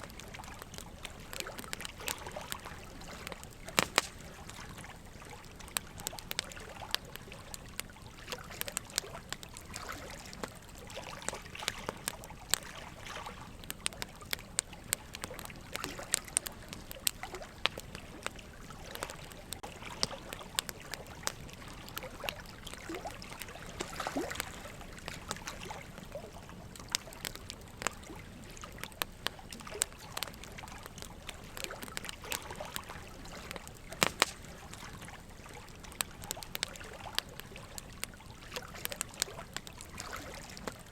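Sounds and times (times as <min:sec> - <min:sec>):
fire pops and snaps: 0:00.0 - 0:40.9
low fire hiss: 0:00.0 - 0:40.9
wood fire crackling: 0:00.0 - 0:40.9.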